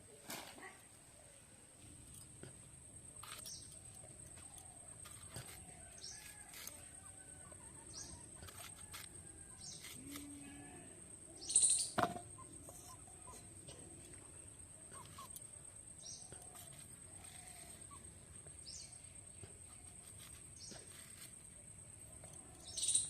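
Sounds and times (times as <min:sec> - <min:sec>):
birds chirping: 0:11.3 - 0:14.0, 0:22.5 - 0:23.0.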